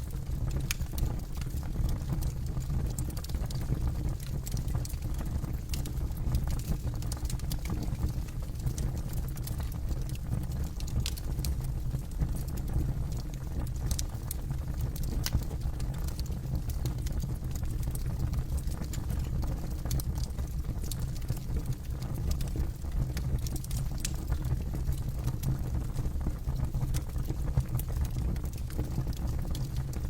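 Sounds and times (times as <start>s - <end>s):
campfire low rumble: 0.0s - 30.0s
wood crackling and popping: 0.1s - 30.0s.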